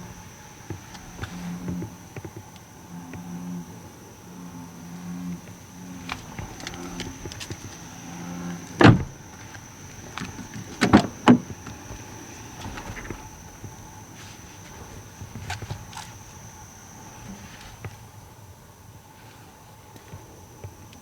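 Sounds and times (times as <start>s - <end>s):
frog croaking: 0.0s - 17.5s
loud thumps: 8.7s - 15.9s.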